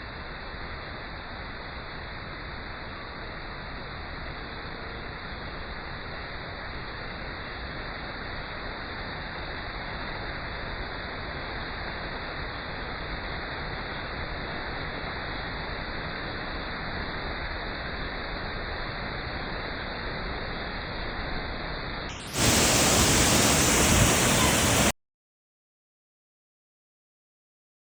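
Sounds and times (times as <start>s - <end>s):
waterfall rushing: 22.2s - 24.9s
louder brighter water rush: 22.2s - 25.0s.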